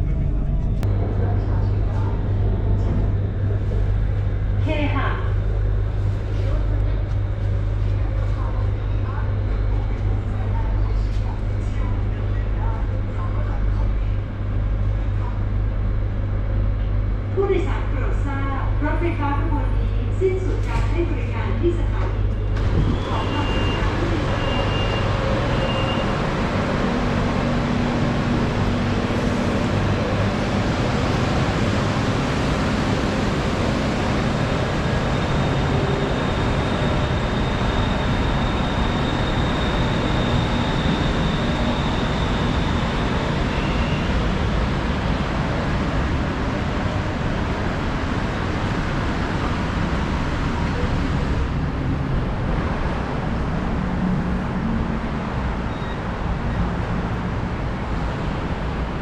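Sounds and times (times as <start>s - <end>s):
train wheels rumbling on rail: 19.4s - 59.0s.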